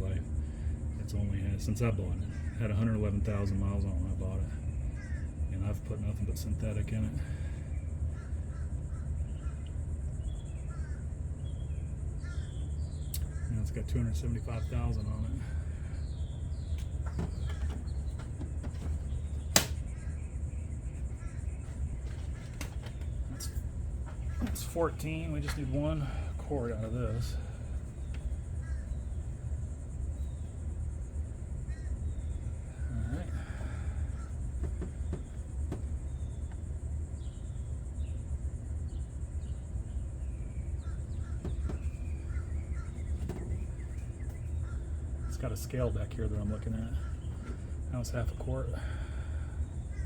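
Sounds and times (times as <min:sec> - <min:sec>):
steady low rumble: 0:00.0 - 0:50.0
bird chirps: 0:07.3 - 0:50.0
plastic jugs knocking: 0:16.8 - 0:19.9, 0:33.6 - 0:36.0, 0:41.4 - 0:43.9
sharp click: 0:19.5 - 0:19.8.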